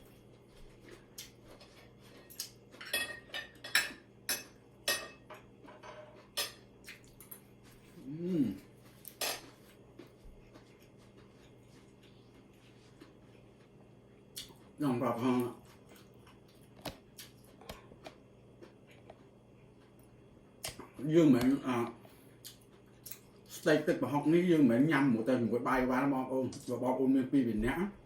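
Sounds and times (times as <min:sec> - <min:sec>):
cutlery clinking on a plate: 0:02.8 - 0:06.6, 0:09.2 - 0:09.6
person humming: 0:08.0 - 0:08.7.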